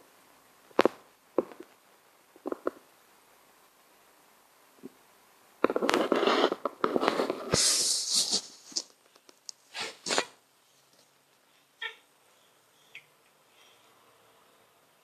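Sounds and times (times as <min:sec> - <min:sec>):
rustling and scuffing: 0:05.7 - 0:09.0, 0:09.7 - 0:11.1.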